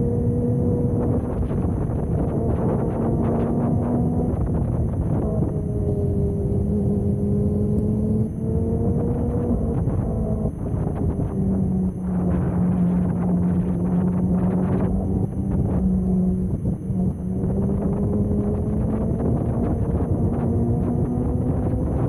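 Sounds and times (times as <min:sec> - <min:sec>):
motorcycle engine running: 0:00.0 - 0:22.0
wind rushing over microphone: 0:00.0 - 0:22.0.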